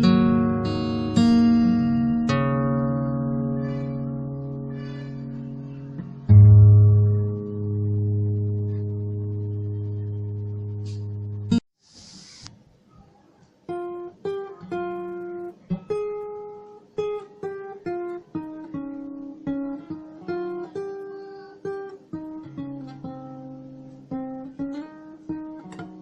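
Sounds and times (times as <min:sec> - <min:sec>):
plucked acoustic guitar melody: 0:00.0 - 0:11.6, 0:13.6 - 0:26.0.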